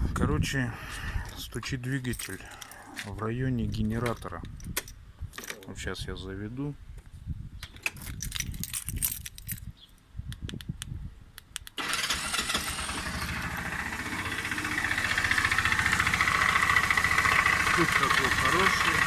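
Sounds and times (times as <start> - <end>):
scooter engine cranking: 11.8 - 19.0
scooter engine running: 11.8 - 19.0
engine knock: 11.9 - 19.0.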